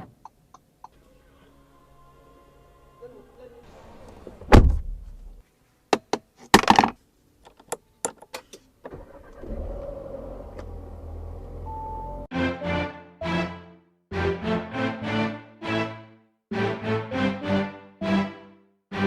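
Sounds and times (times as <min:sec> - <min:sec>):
music: 0:00.9 - 0:03.7, 0:11.7 - 0:19.0
car engine idling: 0:09.0 - 0:12.2.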